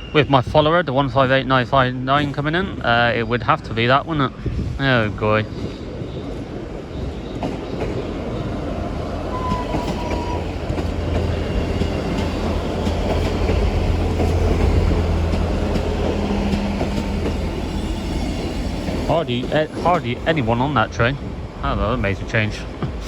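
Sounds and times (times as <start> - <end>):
diesel train engines droning: 0.0 - 23.0
wheels clicking over rail joints: 7.0 - 20.7
high squeal of wheels or brakes: 9.3 - 10.6.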